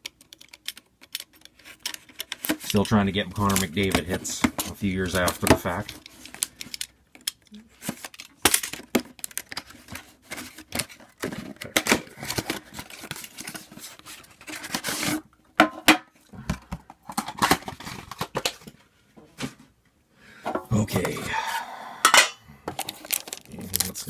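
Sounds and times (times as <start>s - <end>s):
packaging tearing and rustling: 0.2s - 15.2s, 17.1s - 18.7s, 22.7s - 24.0s.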